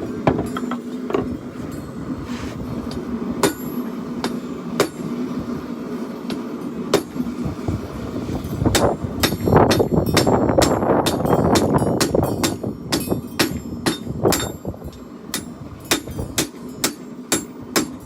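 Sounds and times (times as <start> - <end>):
hammer striking steel on anvil: 0.2 - 1.4, 2.9 - 5.1, 6.3 - 7.2, 8.7 - 18.0.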